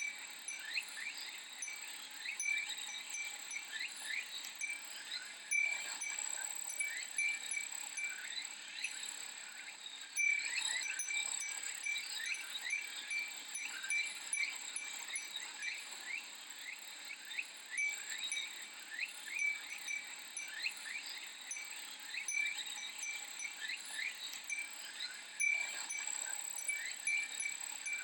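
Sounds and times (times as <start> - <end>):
wind chime ringing: 0.0 - 4.8, 5.5 - 9.0, 10.2 - 15.8, 17.7 - 24.8, 25.4 - 28.0
cicadas chorus: 0.0 - 28.0.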